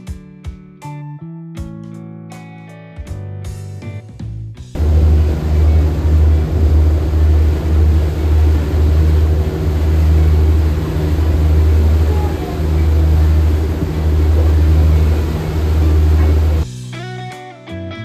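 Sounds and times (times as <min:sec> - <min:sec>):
low engine rumble: 0:04.8 - 0:16.7
weak hum: 0:04.8 - 0:16.7.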